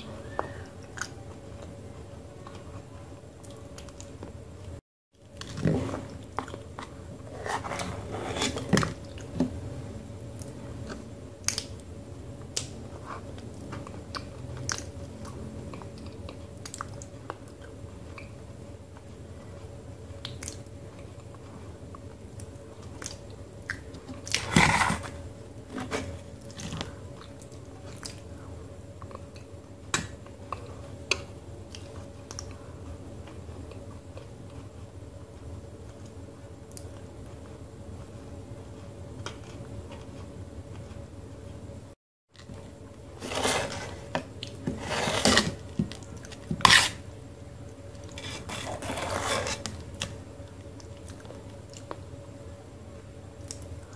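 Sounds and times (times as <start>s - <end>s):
steady low hum: 0.0s - 53.9s
wet chewing and mouth sounds: 12.5s - 18.3s.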